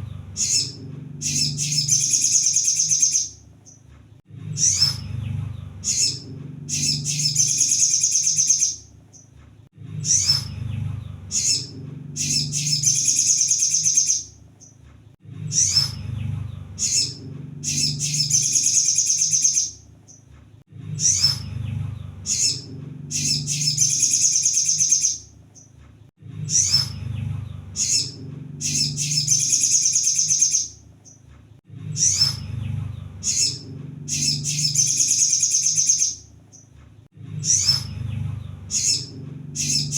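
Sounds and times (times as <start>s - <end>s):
low rumble: 0.0s - 2.3s, 4.2s - 7.6s, 9.6s - 13.0s, 14.4s - 18.6s, 20.6s - 24.0s, 26.1s - 29.5s, 31.6s - 35.0s, 37.0s - 39.9s
sunbird singing chirps and trills: 0.0s - 3.8s, 4.5s - 9.3s, 10.0s - 14.8s, 15.5s - 20.2s, 21.0s - 25.7s, 26.4s - 31.2s, 31.9s - 36.7s, 37.4s - 39.9s.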